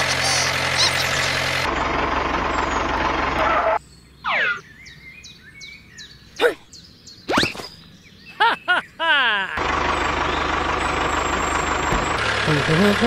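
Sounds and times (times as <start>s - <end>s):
tractor engine running: 0.0s - 3.8s, 9.6s - 13.0s.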